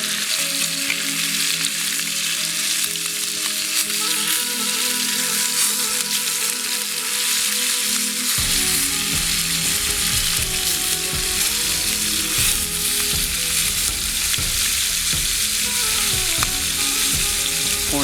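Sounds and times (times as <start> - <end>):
meat sizzling in a skillet: 0.0 - 18.0.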